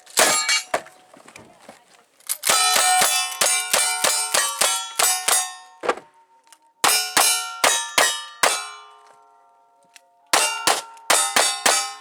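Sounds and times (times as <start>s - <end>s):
steel plates ringing: 0.0s - 0.8s, 2.4s - 5.8s, 6.8s - 9.0s, 10.4s - 12.0s
metallic clang of steel targets: 0.0s - 1.0s, 2.3s - 5.8s, 6.8s - 9.2s, 10.3s - 12.0s.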